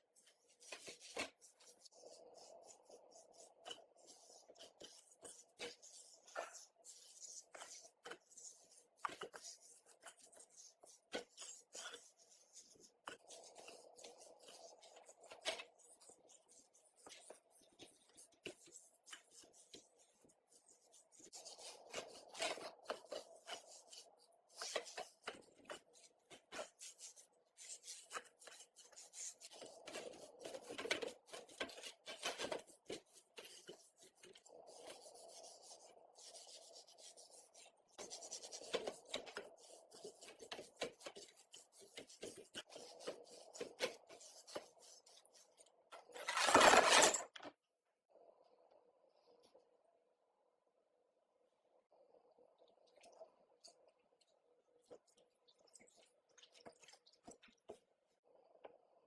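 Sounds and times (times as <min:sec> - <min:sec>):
rubbing and scraping: 0:46.0 - 0:47.4.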